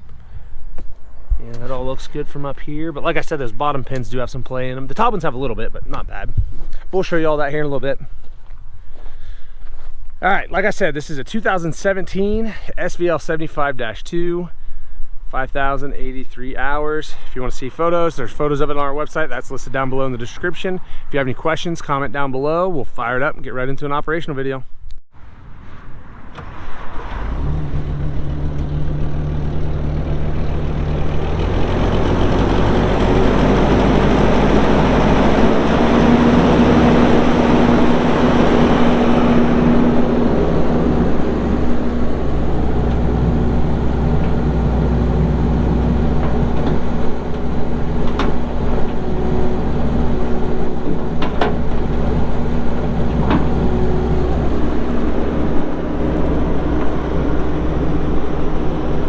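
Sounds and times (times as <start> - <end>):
diesel engine idling and revving: 26.2 - 59.0.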